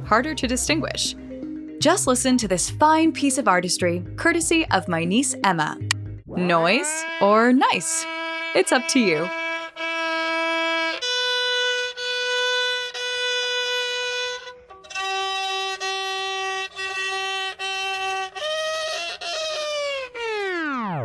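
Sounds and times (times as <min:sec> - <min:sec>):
solo violin bowing: 0:06.3 - 0:21.0.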